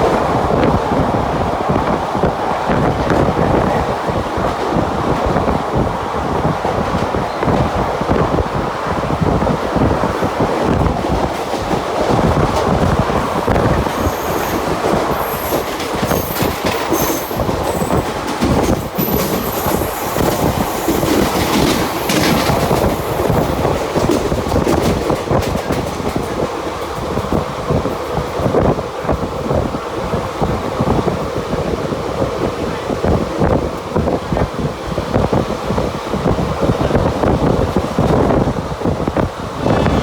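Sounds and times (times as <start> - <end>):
train wheels clattering over rails: 1.8 - 39.8
train wheels squealing: 14.0 - 21.4.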